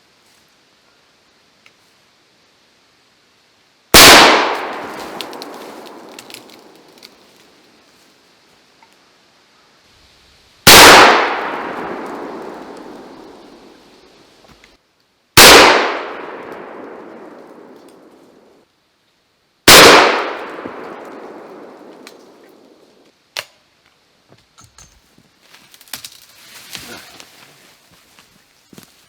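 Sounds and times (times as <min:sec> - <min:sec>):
gunshots with long echo: 0:03.9 - 0:07.0, 0:10.6 - 0:13.9, 0:15.4 - 0:18.5, 0:19.7 - 0:22.9.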